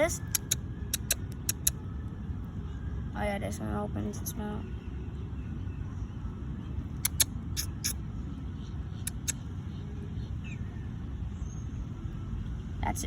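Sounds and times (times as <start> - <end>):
short sharp clicks: 0.3 - 1.8, 7.0 - 8.0, 9.1 - 9.4.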